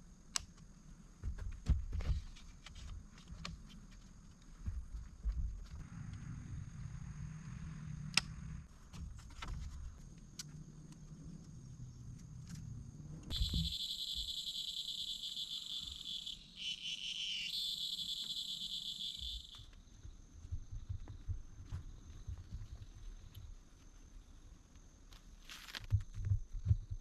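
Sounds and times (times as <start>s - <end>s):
insect chirring buzz: 10.3s - 24.9s.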